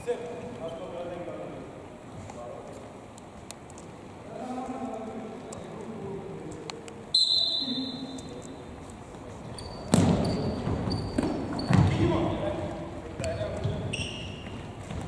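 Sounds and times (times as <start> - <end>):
short high whistle blast: 7.1 - 8.1.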